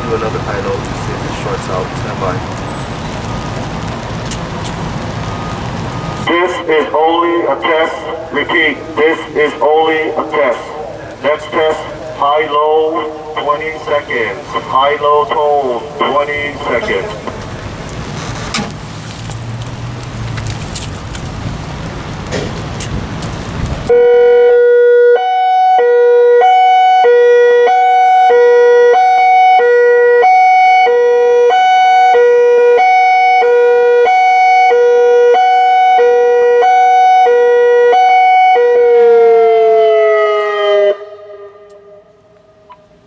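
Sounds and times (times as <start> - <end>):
warning siren high-low tone: 23.9 - 42.8.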